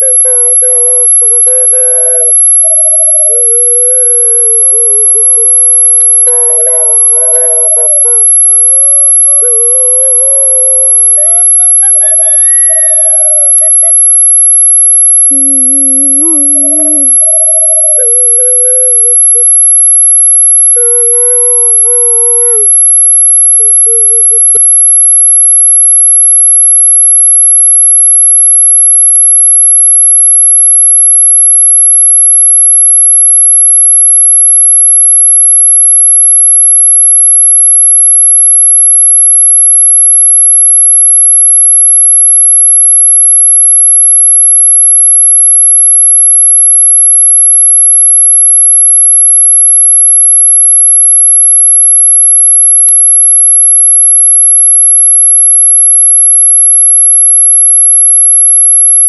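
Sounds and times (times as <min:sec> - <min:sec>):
high-pitched electronic tone: 0:00.0 - 0:25.4.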